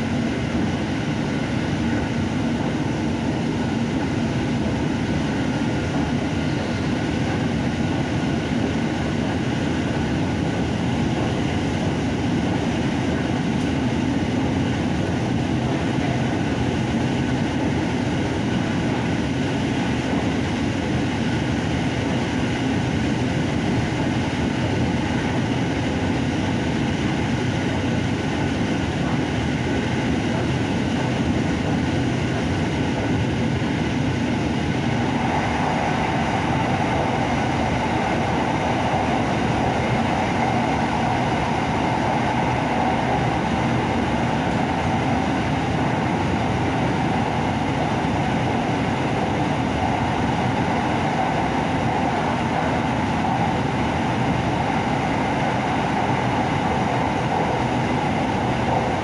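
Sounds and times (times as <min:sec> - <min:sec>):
train rolling inside carriage: 0:00.0 - 0:59.0
steady hum: 0:24.4 - 0:59.0.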